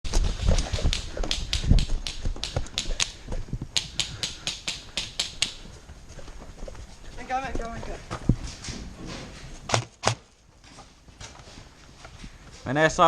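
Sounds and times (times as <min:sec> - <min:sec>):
sharp clicks: 0:00.7 - 0:03.2, 0:03.8 - 0:05.6.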